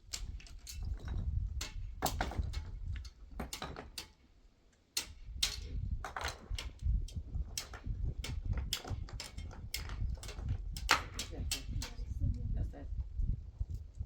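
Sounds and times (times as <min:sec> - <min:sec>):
irregular knocks and clicks: 0:00.0 - 0:04.2, 0:05.0 - 0:12.0.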